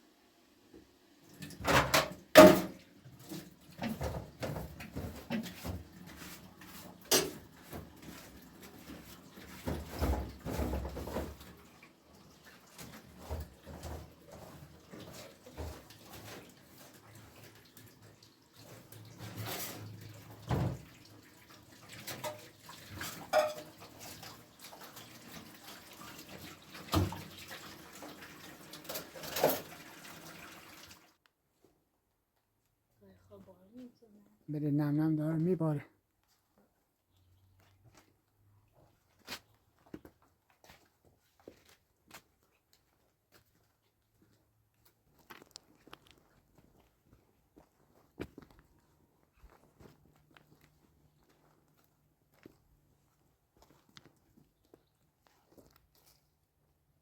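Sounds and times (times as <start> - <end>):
knocks and clinks: 23.3 - 23.7.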